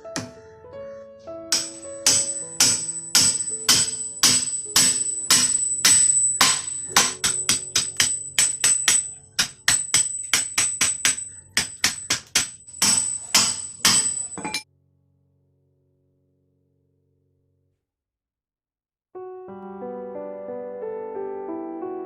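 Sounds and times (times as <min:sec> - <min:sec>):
soft background music: 0:00.0 - 0:11.6
hammer driving nails into wood: 0:01.5 - 0:14.5.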